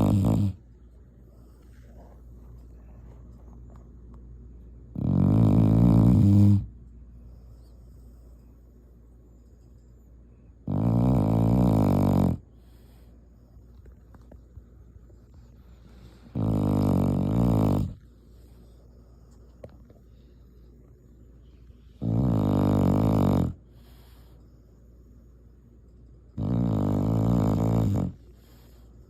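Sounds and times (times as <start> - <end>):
dog snoring: 0.0 - 0.6, 4.9 - 6.7, 10.6 - 13.1, 15.4 - 19.7, 21.8 - 24.4, 26.3 - 28.9.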